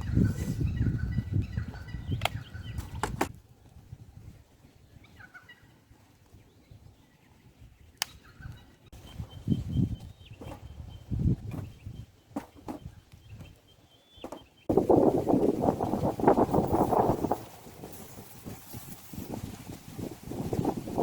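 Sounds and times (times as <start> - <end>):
campfire popping and crackling: 14.7 - 21.0.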